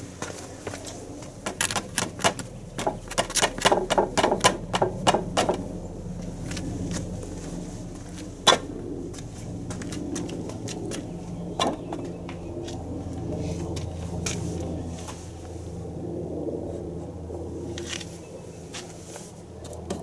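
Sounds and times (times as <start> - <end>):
steady low hum: 0.0 - 20.0
wood and tools knocking: 1.4 - 5.6.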